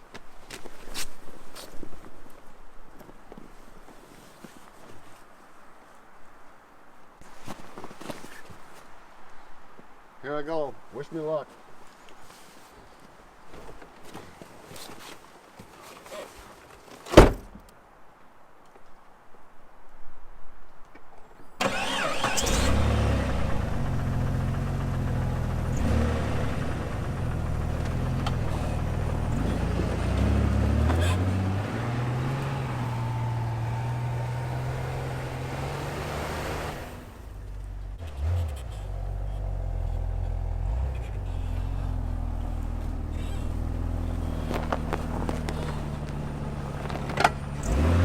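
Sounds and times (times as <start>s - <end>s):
car engine revving under load: 21.6s - 48.0s.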